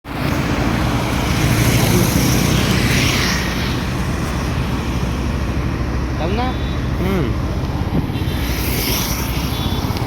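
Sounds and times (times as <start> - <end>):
wind and road hiss: 0.1 - 10.0.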